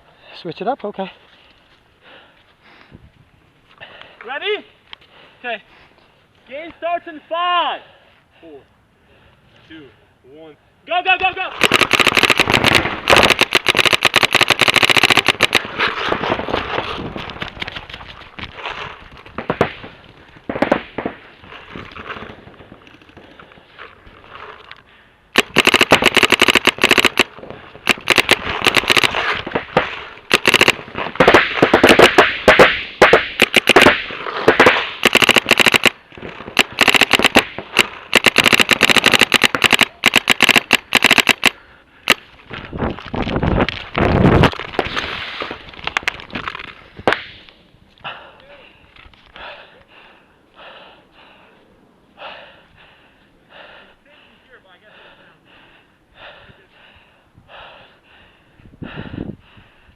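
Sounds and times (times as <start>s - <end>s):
paintball markers firing: 11.2s - 18.0s, 25.4s - 42.3s.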